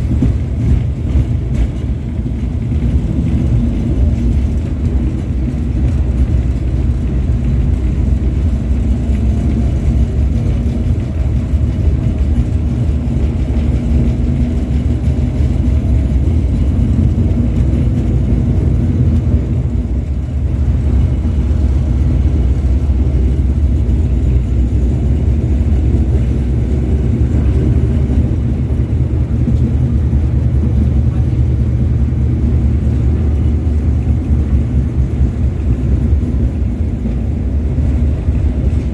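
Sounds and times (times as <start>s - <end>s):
tram wheels rumbling on rails: 0.0s - 38.9s.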